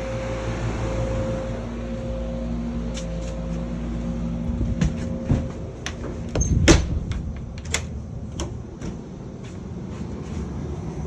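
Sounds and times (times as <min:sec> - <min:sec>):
air conditioning hum: 0:00.0 - 0:11.0
clicks and knocks: 0:04.6 - 0:09.1.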